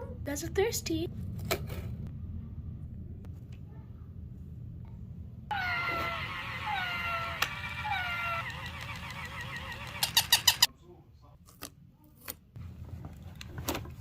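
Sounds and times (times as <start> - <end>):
cat meowing: 5.5 - 8.5.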